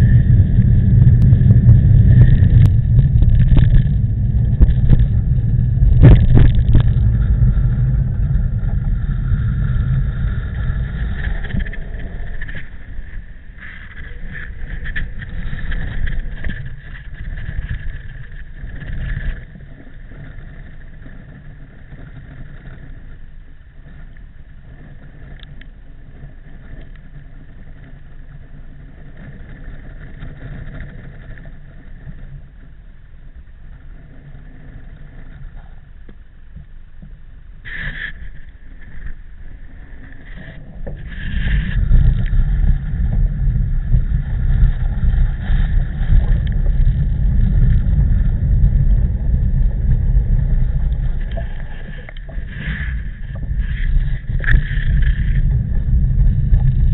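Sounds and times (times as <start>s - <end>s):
wind rushing over microphone: 0.0s - 23.1s, 37.0s - 56.9s.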